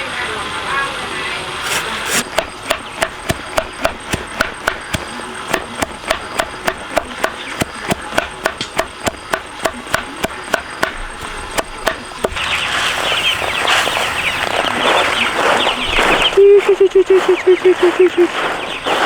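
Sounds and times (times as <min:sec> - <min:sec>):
blade chopping wood: 0:01.6 - 0:13.2.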